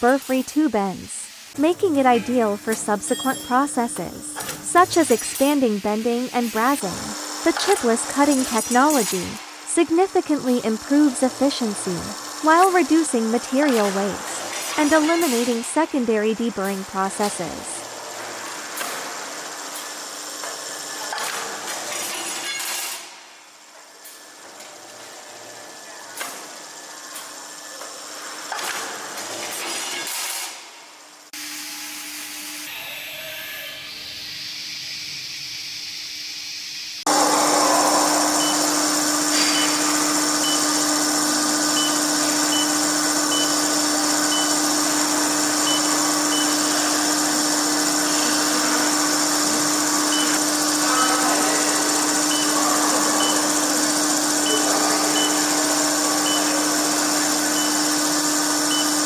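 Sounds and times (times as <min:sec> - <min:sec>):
machine humming: 0:01.2 - 0:18.7, 0:37.1 - 0:59.0
short high beep: 0:02.9 - 0:06.0
loud steady hiss: 0:34.2 - 0:59.0.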